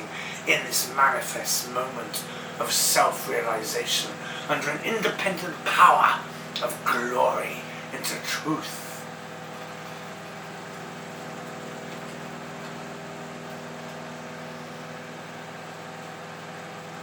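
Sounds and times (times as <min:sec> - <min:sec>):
microwave oven humming: 0:00.0 - 0:17.0.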